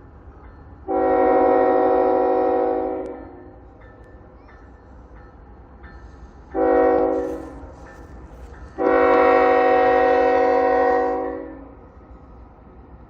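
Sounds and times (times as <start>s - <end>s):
low train rumble: 0.0s - 13.0s
locomotive air horn blasts: 0.9s - 3.5s, 6.5s - 7.6s, 8.8s - 11.8s.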